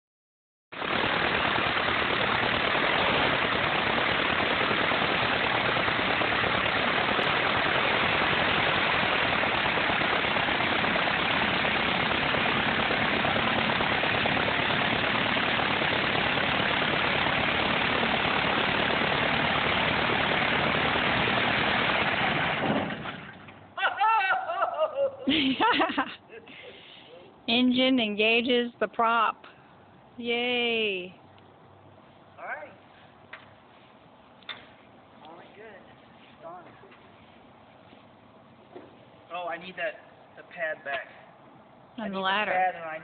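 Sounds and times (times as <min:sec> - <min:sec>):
aircraft propeller engine running: 0:00.7 - 0:23.7.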